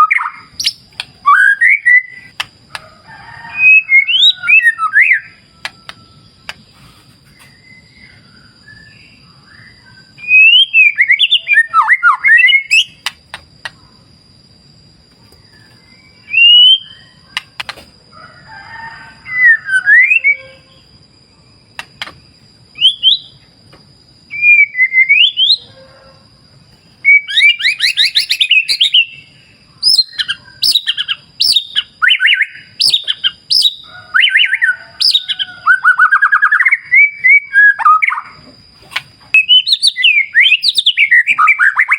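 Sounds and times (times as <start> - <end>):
songbird singing whistled phrases: 0.0 - 2.4, 3.5 - 6.5, 7.4 - 13.1, 15.5 - 17.5, 19.2 - 20.8, 22.7 - 23.4, 24.3 - 25.7, 27.0 - 38.4, 39.3 - 41.9.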